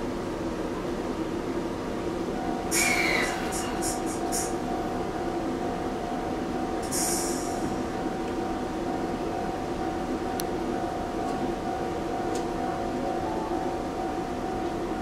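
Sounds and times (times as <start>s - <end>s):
constant whine: 0.0s - 15.0s
train rumble: 0.0s - 15.0s
high hiss: 2.7s - 4.6s, 6.8s - 7.8s.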